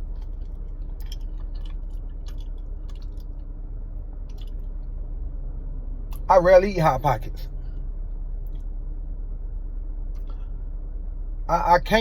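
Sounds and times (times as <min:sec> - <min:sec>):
person chewing food: 0:00.0 - 0:03.6, 0:04.2 - 0:04.9
steady low hum: 0:00.0 - 0:12.0.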